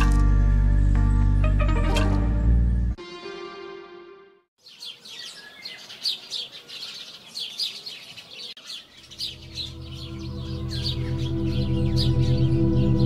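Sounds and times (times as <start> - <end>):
ambient music with low tones: 0.0 - 4.5, 9.1 - 13.0
small birds chirping: 4.6 - 13.0.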